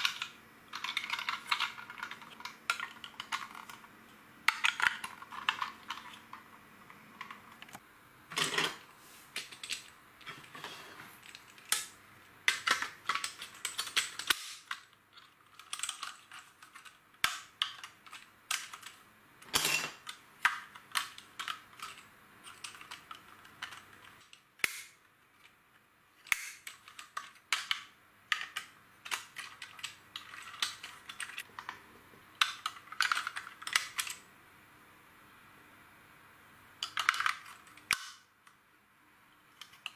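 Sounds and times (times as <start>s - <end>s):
plastic bricks clicking and rattling: 0.0s - 6.6s, 9.4s - 24.4s, 26.2s - 31.8s, 32.4s - 34.2s, 36.8s - 38.2s.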